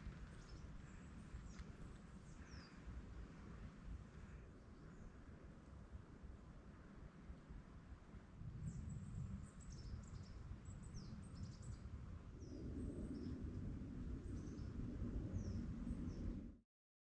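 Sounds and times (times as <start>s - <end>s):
small birds chirping: 0.1s - 2.9s, 8.6s - 13.5s, 14.2s - 16.3s
low rumbling background: 8.5s - 16.6s.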